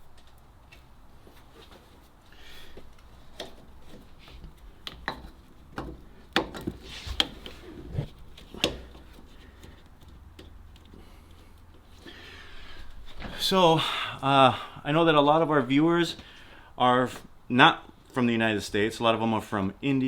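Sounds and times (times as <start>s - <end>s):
sharp clicks and light knocks: 8.4s - 11.0s.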